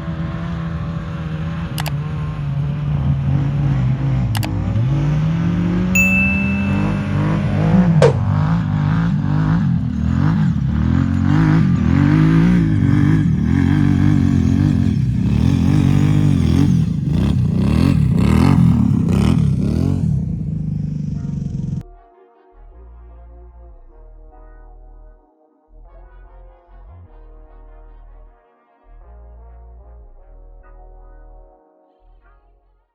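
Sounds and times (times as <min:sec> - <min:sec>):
engine revving: 0:00.1 - 0:05.9, 0:06.8 - 0:21.8
sharp knock: 0:08.0 - 0:08.6.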